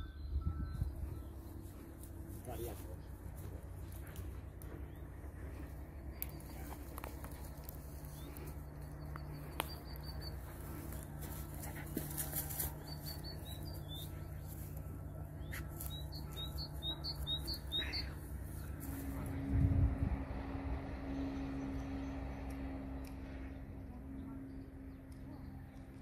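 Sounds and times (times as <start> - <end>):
small birds chirping: 0.0 - 19.3
steady low rumble: 0.0 - 26.0.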